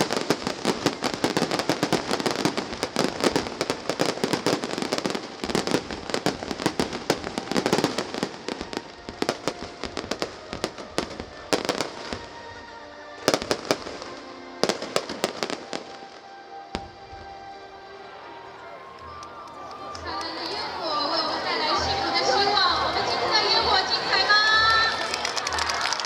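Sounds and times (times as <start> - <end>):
fireworks crackling and popping: 0.0 - 12.6, 18.9 - 26.0
music with held tones: 0.5 - 26.0.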